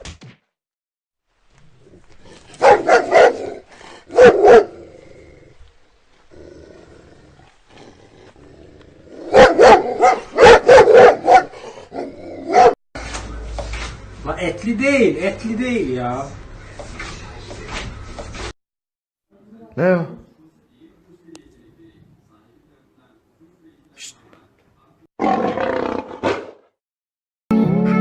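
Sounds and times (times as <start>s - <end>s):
dog barking: 2.6s - 4.8s, 9.3s - 12.8s.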